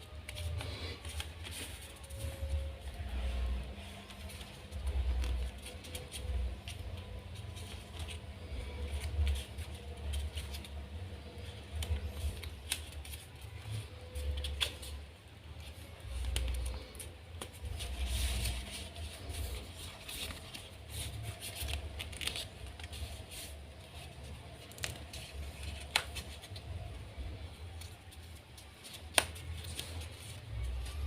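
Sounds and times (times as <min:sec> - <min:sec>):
paper rustling and scraping: 0:00.0 - 0:31.0
crisp paper snaps: 0:24.6 - 0:26.5, 0:28.8 - 0:30.0.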